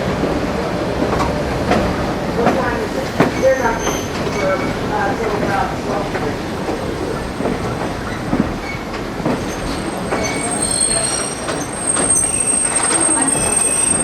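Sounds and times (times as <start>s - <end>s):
railroad cars rolling on track: 0.0s - 14.0s
wheel flanges squealing: 3.3s - 5.1s, 8.0s - 14.0s.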